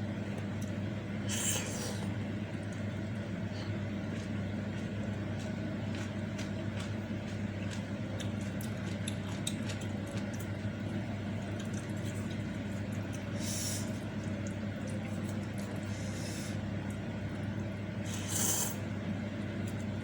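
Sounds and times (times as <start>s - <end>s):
steady low hum: 0.0s - 20.0s
chewing and slurping: 3.6s - 10.8s.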